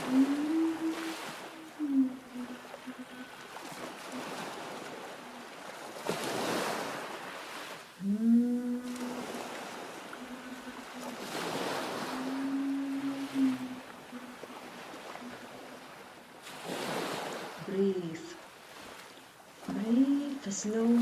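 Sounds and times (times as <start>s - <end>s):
low long-held tones: 0.0s - 5.6s, 8.0s - 16.1s
ocean waves surging: 0.0s - 21.0s.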